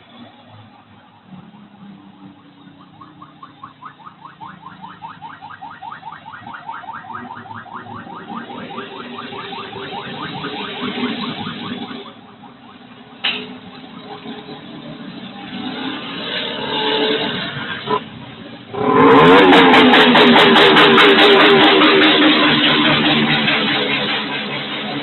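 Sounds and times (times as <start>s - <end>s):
motorcycle exhaust pulsing: 18.7s - 25.0s.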